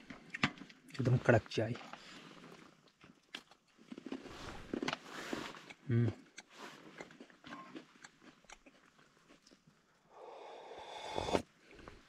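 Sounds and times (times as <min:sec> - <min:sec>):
biscuits crunching and chewing: 0:00.0 - 0:12.0
sipping hot tea: 0:10.1 - 0:12.0.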